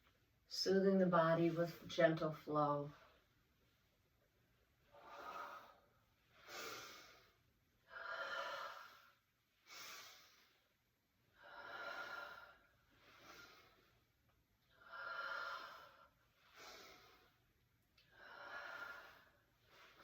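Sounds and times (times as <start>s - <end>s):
person breathing slowly: 4.8s - 14.1s, 14.7s - 20.0s.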